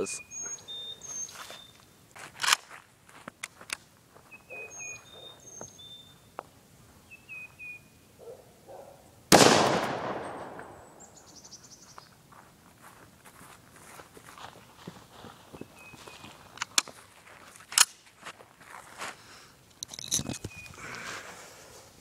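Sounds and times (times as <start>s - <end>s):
small birds chirping: 0.0s - 2.0s, 4.2s - 9.0s, 10.7s - 12.2s, 15.4s - 16.8s, 20.2s - 21.1s
rifle shot echoing: 9.3s - 11.2s.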